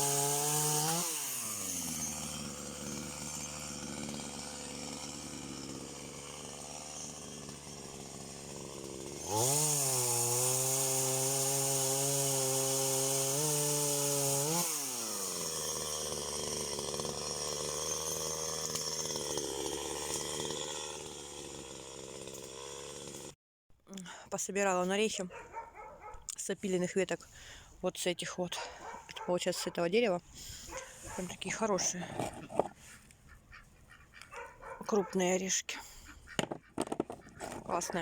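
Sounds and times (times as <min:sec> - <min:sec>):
chainsaw idling and revving: 0:00.0 - 0:23.4, 0:29.8 - 0:32.8, 0:34.2 - 0:38.0.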